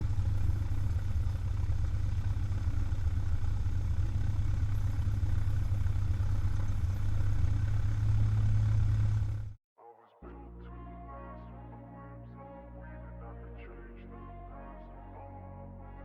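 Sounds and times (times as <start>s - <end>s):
propeller plane engine drone: 0.0s - 9.6s.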